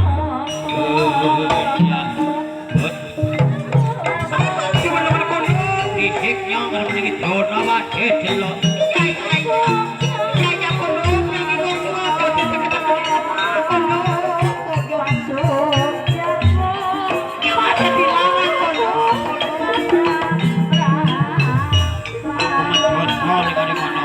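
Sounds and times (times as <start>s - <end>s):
rattling percussion: 0.0s - 24.0s
wavering gamelan melody: 0.0s - 24.0s.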